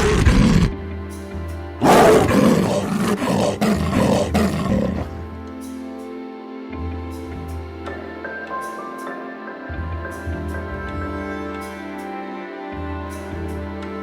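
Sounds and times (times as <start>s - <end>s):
background music: 0.0s - 14.0s
leopard rasping call: 1.8s - 5.4s.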